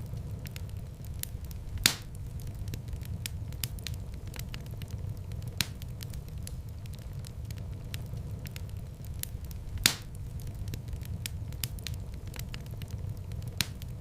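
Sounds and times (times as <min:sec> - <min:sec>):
wood fire crackling: 0:00.0 - 0:14.0
loud fire pop: 0:01.8 - 0:02.2, 0:09.8 - 0:10.2.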